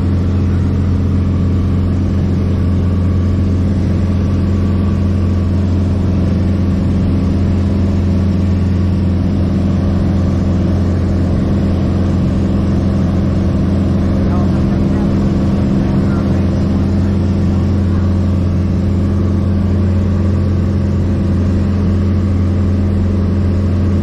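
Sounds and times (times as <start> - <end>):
airplane piston engine from cabin: 0.0 - 24.0.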